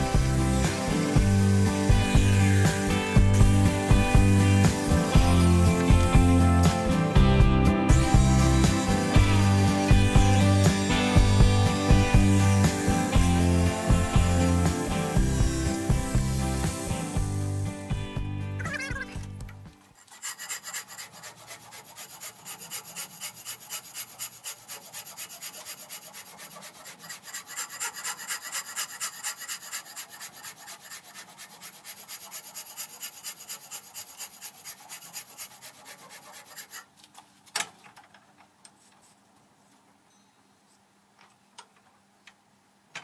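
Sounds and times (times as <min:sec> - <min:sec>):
hand file rasping: 0:00.0 - 0:06.9, 0:07.9 - 0:17.7, 0:20.0 - 0:36.9.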